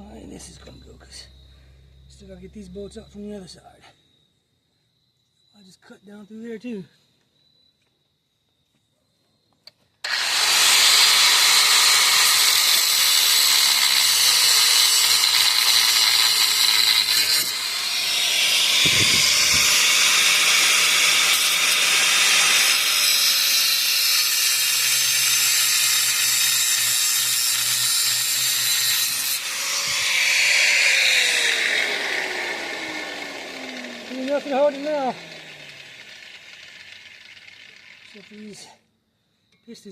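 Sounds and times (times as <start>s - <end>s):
power tool cutting metal bolt: 10.0s - 38.4s.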